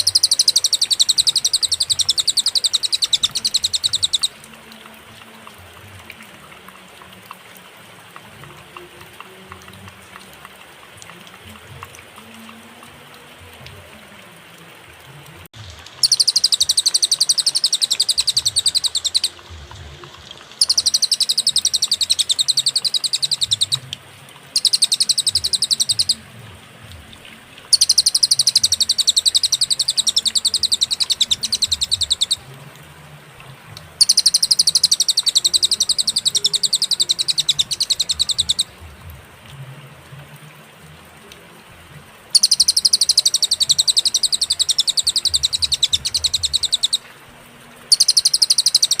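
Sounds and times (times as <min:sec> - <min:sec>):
bird singing high-pitched trills: 0:00.0 - 0:04.4, 0:16.0 - 0:19.4, 0:20.6 - 0:23.8, 0:24.6 - 0:26.2, 0:27.7 - 0:32.4, 0:34.0 - 0:38.7, 0:42.4 - 0:47.0, 0:47.9 - 0:49.0.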